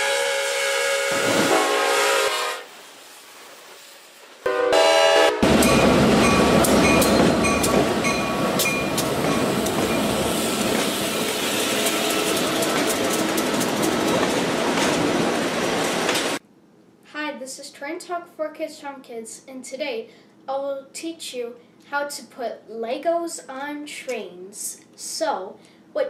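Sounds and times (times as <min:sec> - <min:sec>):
diesel train rumbling past: 0:00.0 - 0:16.4
crossing bell ringing: 0:05.4 - 0:10.2
wheels clicking over rail joints: 0:05.5 - 0:10.9, 0:11.6 - 0:16.4.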